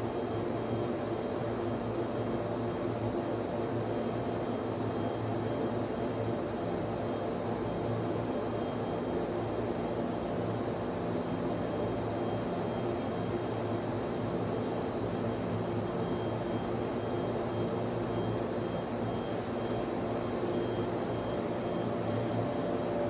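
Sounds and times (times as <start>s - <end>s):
server cooling fans droning: 0.0s - 23.0s.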